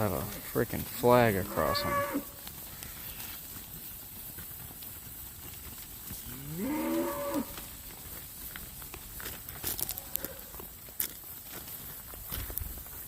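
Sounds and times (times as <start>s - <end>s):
cow mooing: 1.3s - 2.3s, 6.3s - 7.6s.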